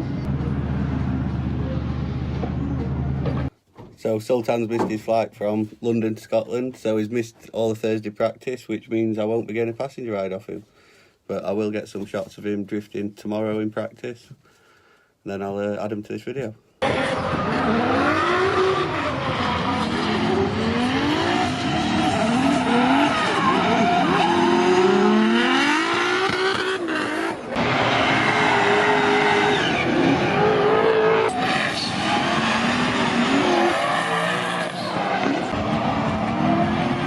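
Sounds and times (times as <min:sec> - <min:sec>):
car engines revving: 0:00.0 - 0:03.5, 0:16.8 - 0:37.0.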